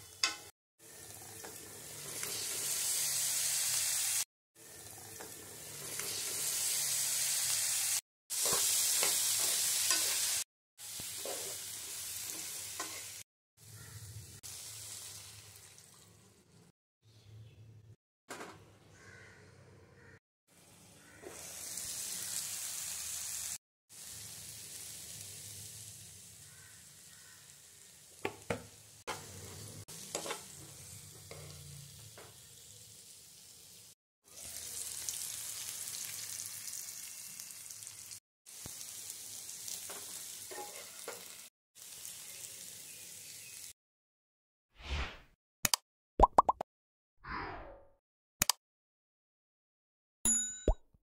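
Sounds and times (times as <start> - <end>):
food sizzling in oil: 0.0 - 13.3, 14.3 - 16.1, 21.2 - 43.8
spoon scraping pan: 12.3 - 13.2, 29.1 - 31.6, 39.9 - 41.3.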